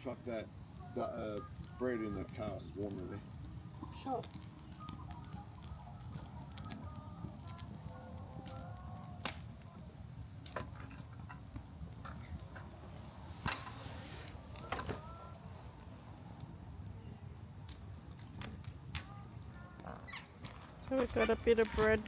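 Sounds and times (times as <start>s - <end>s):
sharp cracks or knocks: 9.2s - 9.4s.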